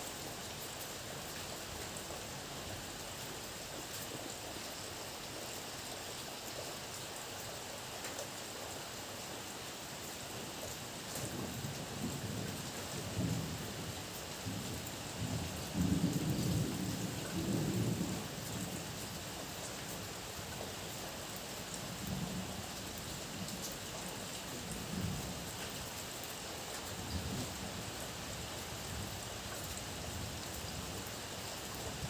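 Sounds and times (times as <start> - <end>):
heavy rain falling: 10.6 - 32.0.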